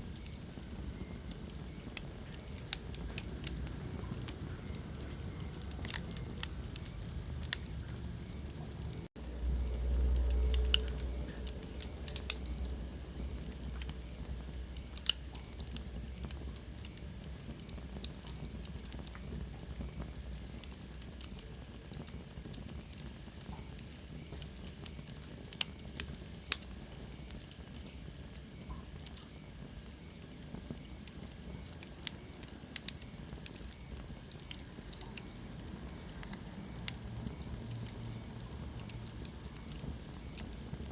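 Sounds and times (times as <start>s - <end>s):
soft steady hiss: 0.0s - 40.9s
wood fire crackling: 0.0s - 40.9s
low rumble: 2.9s - 15.0s.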